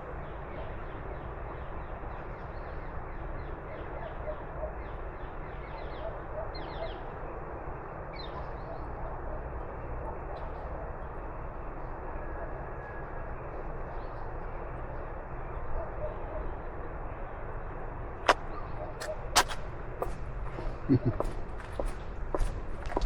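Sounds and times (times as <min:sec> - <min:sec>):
small birds chirping: 0:18.2 - 0:23.0.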